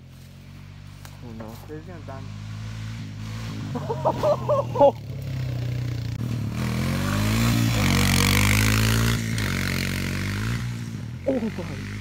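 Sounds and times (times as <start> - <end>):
small vehicle engine revving: 0.0 - 12.0.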